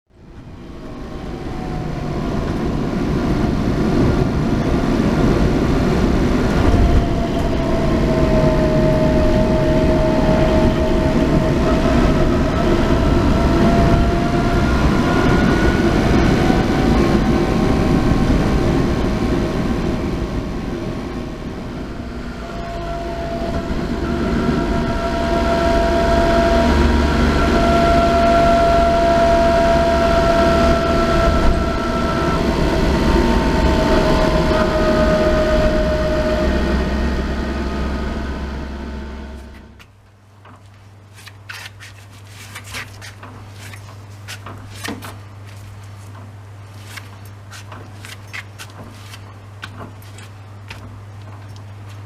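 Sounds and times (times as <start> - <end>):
transmission whining: 0.2 - 41.8.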